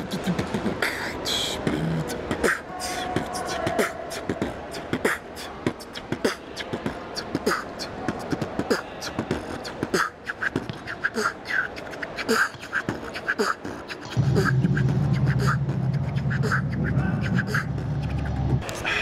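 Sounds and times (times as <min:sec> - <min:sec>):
person beatboxing: 0:00.0 - 0:19.0
loud low rumble: 0:14.2 - 0:18.6.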